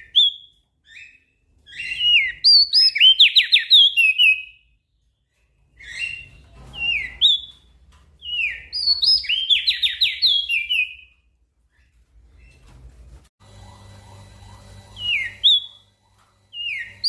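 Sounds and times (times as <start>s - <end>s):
bird singing whistled notes: 8.2s - 11.1s.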